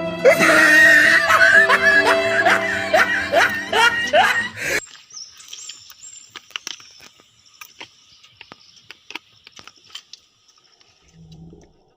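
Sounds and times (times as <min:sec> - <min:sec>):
sharp clicks and snaps: 0:04.8 - 0:11.8.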